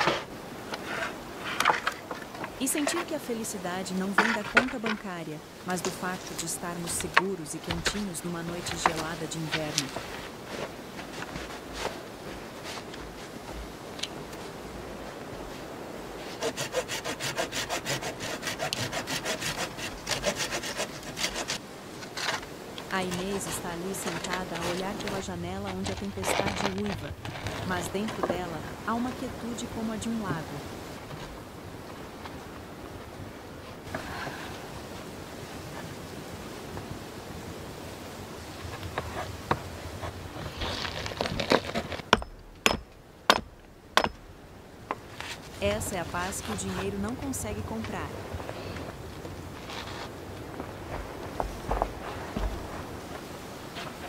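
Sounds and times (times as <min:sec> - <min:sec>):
hand saw cutting wood: 0:16.3 - 0:22.4.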